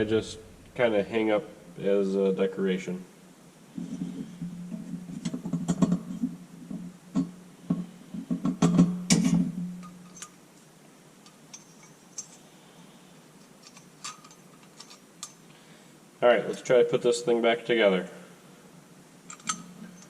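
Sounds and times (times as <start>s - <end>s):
low steady hum: 0.0s - 20.0s
metal lantern parts clinking: 9.1s - 10.4s, 11.2s - 12.4s, 13.4s - 15.5s, 19.3s - 20.0s.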